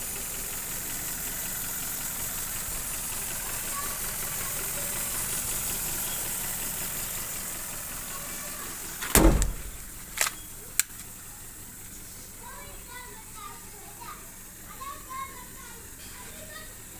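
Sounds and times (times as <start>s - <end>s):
car engine running: 0.0s - 16.9s
loud thump: 9.0s - 10.0s
sharp clicks: 9.0s - 11.2s.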